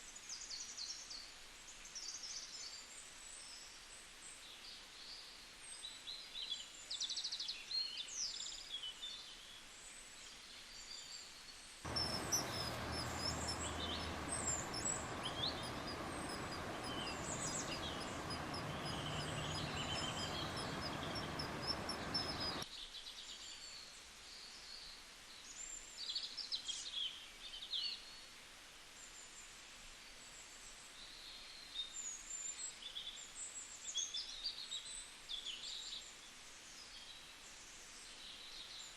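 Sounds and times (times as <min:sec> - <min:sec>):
birds chirping: 0:11.9 - 0:22.6
rapid high chirps: 0:11.9 - 0:22.6
steady rushing noise: 0:11.9 - 0:22.6.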